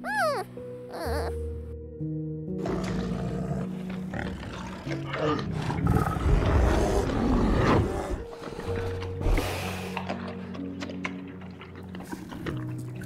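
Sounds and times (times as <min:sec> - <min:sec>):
background music with sustained notes: 0:00.0 - 0:13.0
bear growling: 0:02.6 - 0:12.7.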